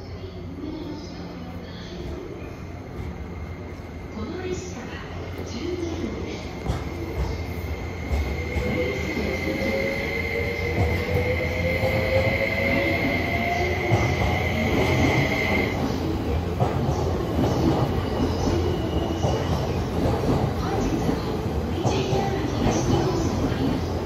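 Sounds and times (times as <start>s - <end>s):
train wheels rumbling on rails: 4.5s - 24.0s.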